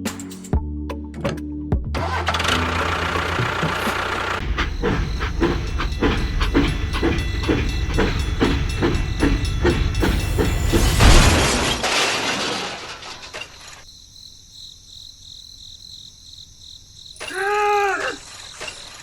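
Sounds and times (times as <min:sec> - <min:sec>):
rhythmic chugging: 0:02.0 - 0:11.4
loud crash: 0:10.6 - 0:13.8.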